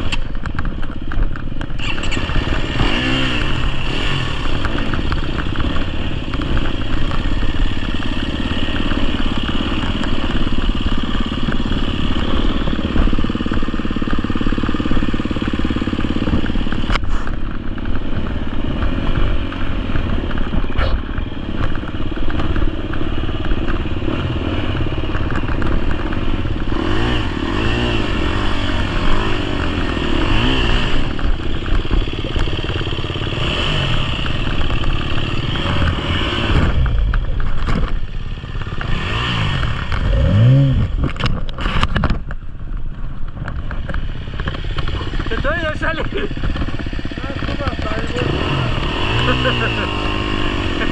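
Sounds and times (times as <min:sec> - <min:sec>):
bike clatter: 0:00.0 - 0:50.9
motorcycle engine revving: 0:00.0 - 0:50.9.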